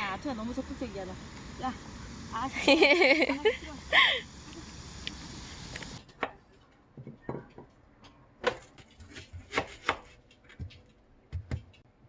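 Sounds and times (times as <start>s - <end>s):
knife chopping on cutting board: 9.0s - 10.2s.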